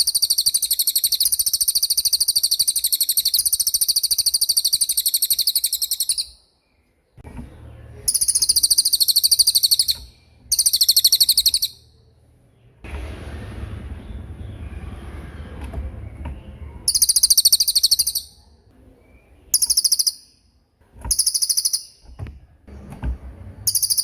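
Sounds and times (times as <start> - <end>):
songbird trilling: 0.0 - 6.5, 8.0 - 12.0, 16.9 - 18.5, 19.2 - 20.5, 21.1 - 22.2, 23.6 - 24.0
faint low hum: 6.6 - 19.8, 21.9 - 24.0.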